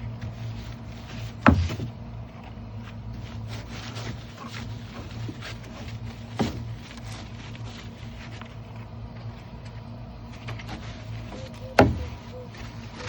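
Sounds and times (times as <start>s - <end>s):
steady low hum: 0.0s - 13.0s
brush scrubbing plastic bin: 0.2s - 2.0s, 3.1s - 8.4s.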